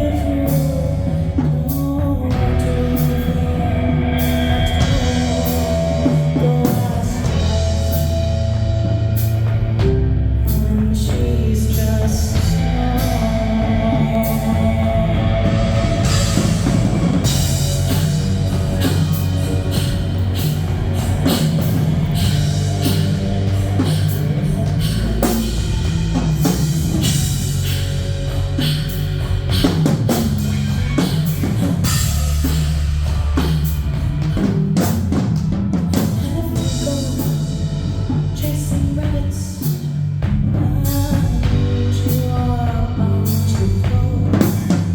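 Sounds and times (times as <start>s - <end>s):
bass guitar: 0.0s - 44.9s
drum kit: 0.0s - 44.9s
live rock band playing: 0.0s - 44.9s.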